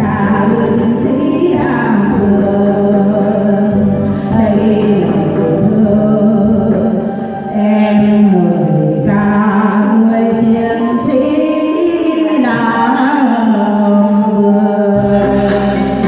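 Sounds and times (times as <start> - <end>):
deep bass line: 0.0 - 6.8, 15.0 - 16.0
instrumental accompaniment: 0.0 - 16.0
person singing: 0.0 - 16.0.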